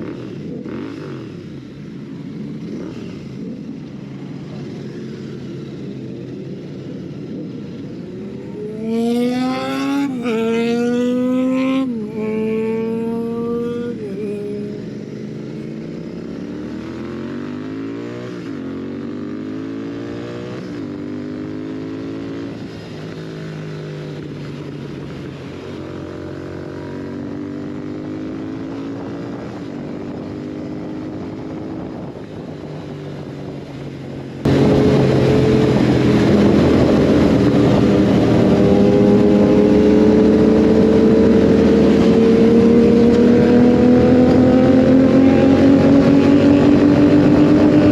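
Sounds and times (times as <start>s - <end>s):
motorcycle engine revving: 0.0s - 47.9s
wind rush: 6.9s - 15.1s, 28.8s - 47.9s.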